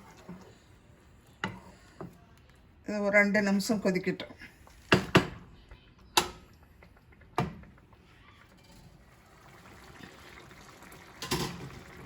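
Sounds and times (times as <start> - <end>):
gravy bubbling in a pan: 6.5 - 12.0.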